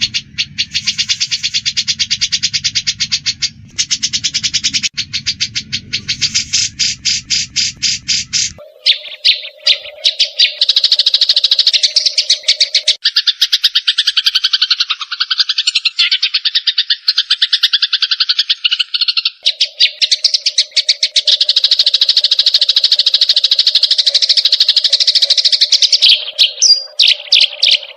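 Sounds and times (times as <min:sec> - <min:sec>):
low drone: 0:00.0 - 0:08.7
birds chattering: 0:00.0 - 0:27.9.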